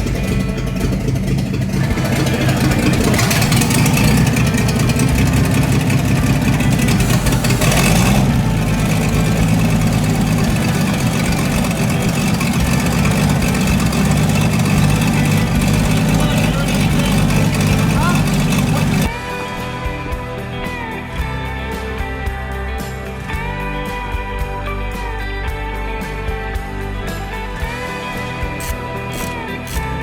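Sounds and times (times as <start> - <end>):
car engine running: 0.0 - 19.9, 27.6 - 30.0.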